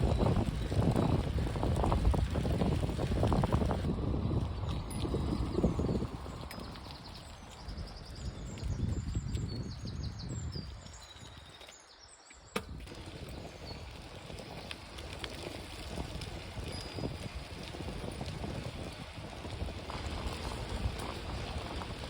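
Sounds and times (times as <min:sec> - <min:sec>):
wind buffeting microphone: 0:00.0 - 0:11.6, 0:12.6 - 0:22.0.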